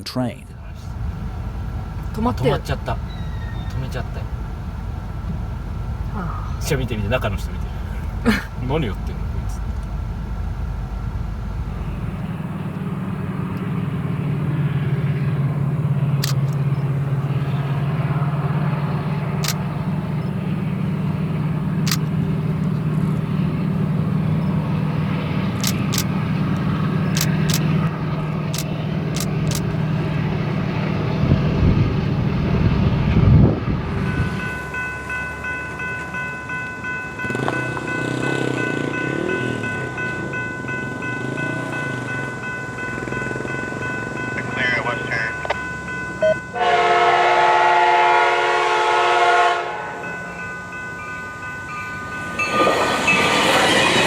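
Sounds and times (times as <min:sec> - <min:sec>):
train rumbling: 0:00.0 - 0:54.0
sharp clicks: 0:16.2 - 0:16.8, 0:21.8 - 0:22.8, 0:25.5 - 0:29.8
steady high tone: 0:32.5 - 0:54.0.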